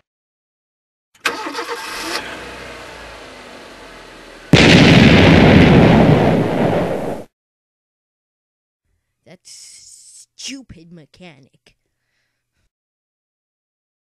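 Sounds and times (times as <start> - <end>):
cartoon car engine running: 1.2 - 4.6.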